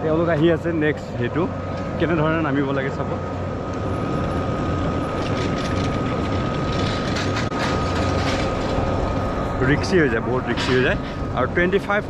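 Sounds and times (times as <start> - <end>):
machinery hum and whine: 0.0 - 12.0
cable and chairs clattering: 3.8 - 12.0.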